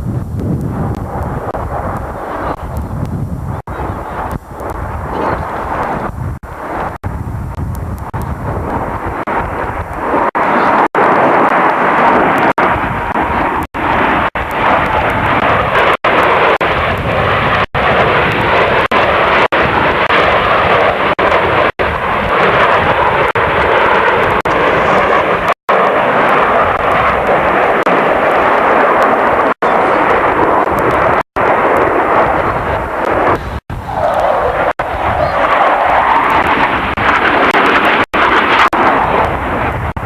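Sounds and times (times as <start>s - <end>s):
aircraft engines in flight: 0.0s - 40.0s.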